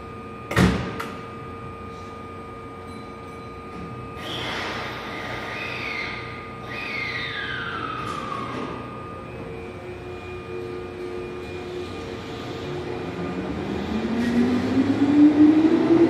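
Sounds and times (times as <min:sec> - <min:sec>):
train steady hum: 0:00.0 - 0:00.4, 0:03.7 - 0:16.0.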